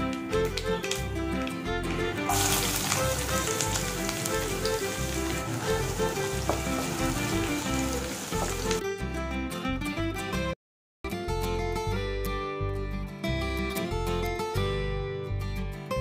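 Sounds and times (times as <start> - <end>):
shallots and garlic sizzling in oil: 0.0 - 8.8.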